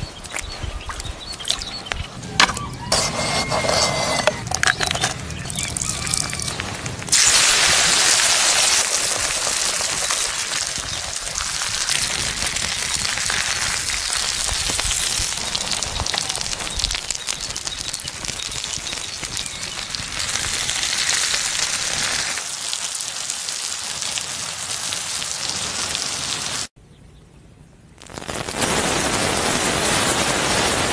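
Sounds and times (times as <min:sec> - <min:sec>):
food sizzling in a hot pan: 0:07.1 - 0:26.7.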